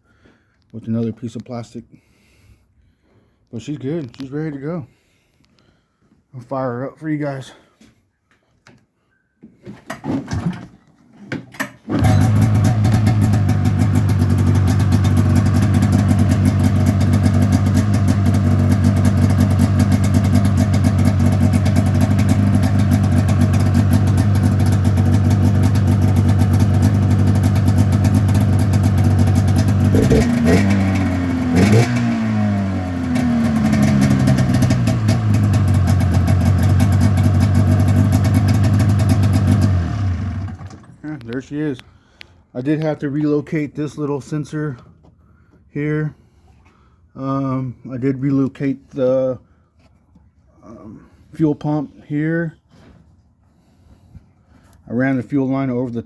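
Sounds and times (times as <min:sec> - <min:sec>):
engine idling and revving: 0:11.9 - 0:40.8
engine cranking: 0:11.9 - 0:41.0.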